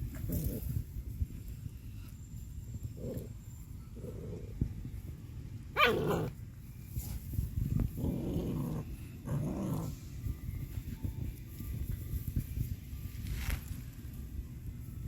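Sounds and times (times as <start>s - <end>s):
puppy growling: 2.9s - 4.6s, 5.8s - 6.4s, 7.9s - 10.0s
puppy yelping: 5.8s - 6.3s.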